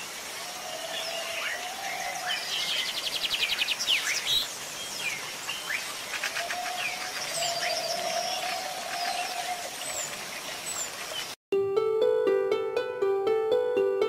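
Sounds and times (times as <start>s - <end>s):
birds chirping: 0.4s - 11.4s.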